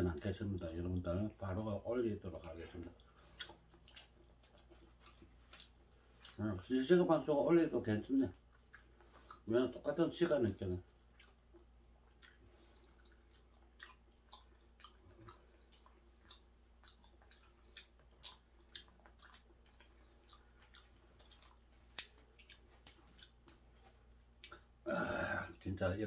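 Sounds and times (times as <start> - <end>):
faint chewing mouth clicks: 0.6 - 7.4, 8.0 - 10.0, 10.6 - 24.8.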